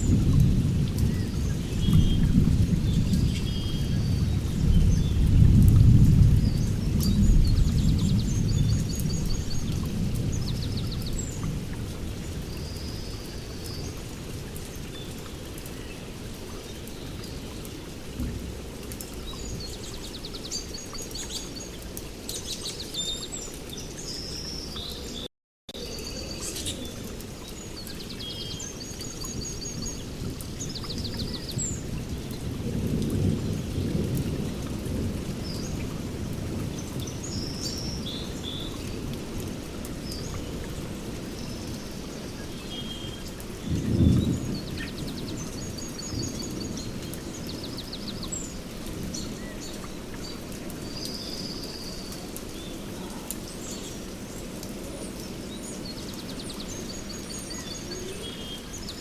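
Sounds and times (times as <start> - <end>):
rolling thunder: 0.0 - 12.9, 43.6 - 48.3
steady rain: 0.0 - 59.0
birds chirping and trilling: 25.8 - 31.9.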